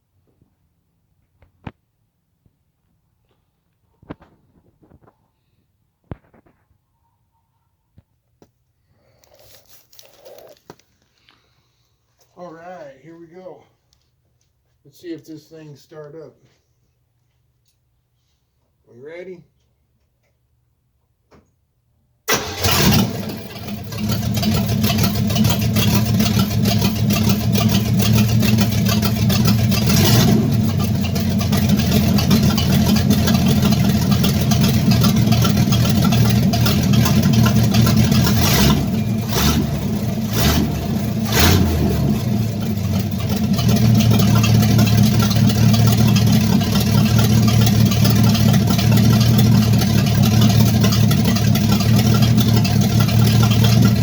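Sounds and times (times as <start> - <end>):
pickup truck engine starting and running: 22.3 - 54.0.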